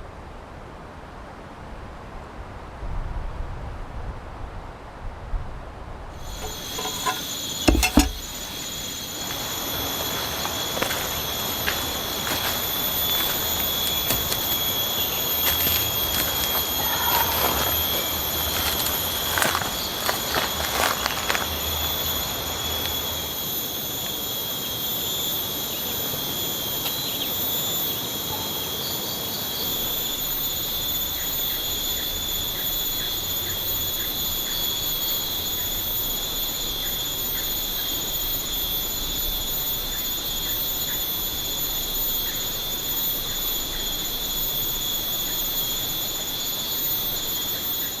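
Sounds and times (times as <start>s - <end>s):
insect chorus drone: 5.8s - 48.0s
small chirps: 6.2s - 17.9s
steady hiss: 6.2s - 48.0s.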